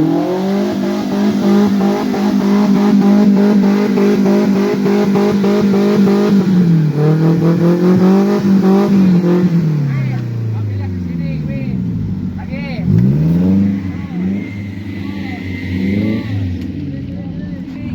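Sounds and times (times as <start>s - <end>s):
off-road vehicle engine revving high: 0.0s - 17.9s.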